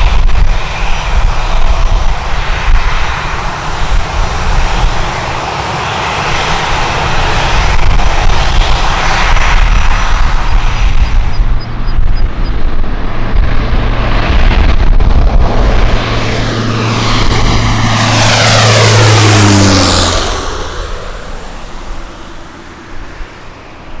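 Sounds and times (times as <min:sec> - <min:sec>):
jet engines whining: 0:00.0 - 0:24.0
heavy low rumble: 0:06.5 - 0:24.0.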